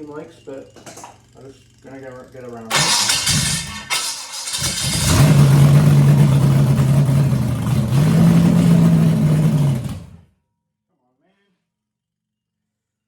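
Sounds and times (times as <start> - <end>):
car engine revving: 2.7 - 10.2.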